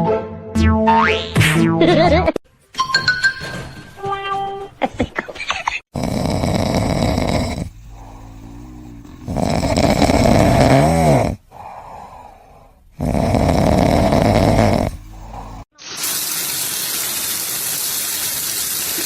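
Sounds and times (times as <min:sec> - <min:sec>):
pet snoring: 0:05.9 - 0:15.7
quiet breaths: 0:06.4 - 0:10.5, 0:11.4 - 0:15.7.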